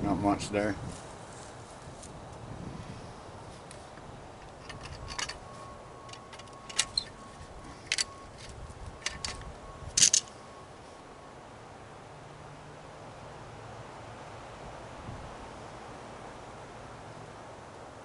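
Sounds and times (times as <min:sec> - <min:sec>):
metal parts clicking and clinking: 0:04.4 - 0:10.3.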